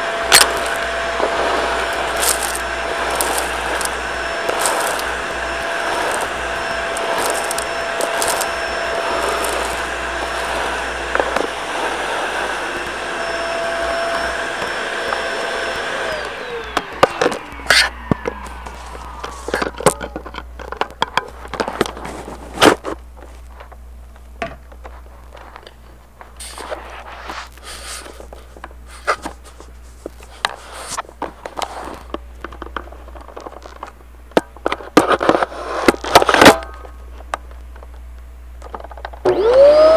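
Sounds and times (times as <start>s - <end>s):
vacuum cleaner running: 0.0s - 22.8s, 39.2s - 39.9s.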